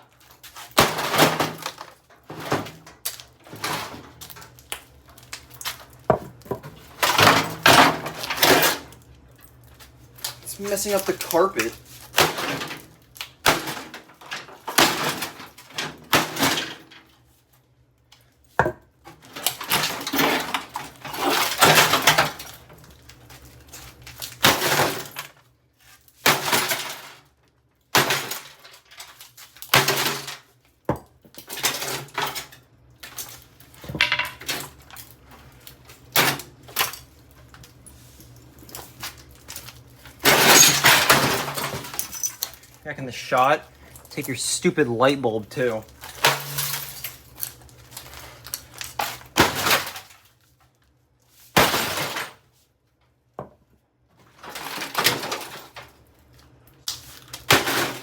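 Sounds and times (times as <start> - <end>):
microwave being smashed apart: 0.5 - 4.5, 5.2 - 8.9, 11.9 - 17.0, 19.1 - 22.7, 24.1 - 25.3, 26.2 - 27.2, 27.9 - 30.5, 39.6 - 42.5, 45.9 - 50.3, 51.5 - 52.5, 54.4 - 55.8, 56.9 - 58.0.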